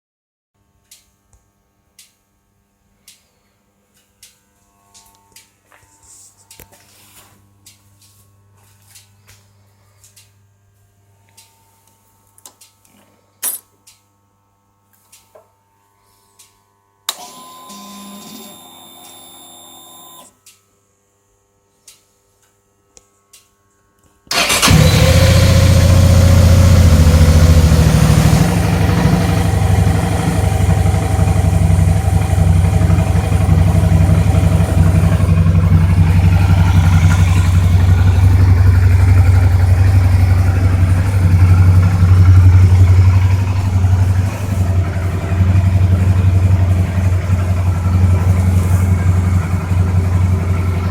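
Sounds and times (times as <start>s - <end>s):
starter motor whirring: 24.3s - 50.9s
motorcycle engine idling: 24.4s - 50.9s.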